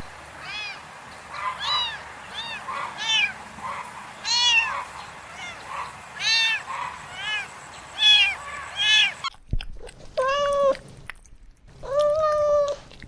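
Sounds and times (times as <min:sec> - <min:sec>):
kitten meowing: 0:04.2 - 0:04.7, 0:06.2 - 0:09.2.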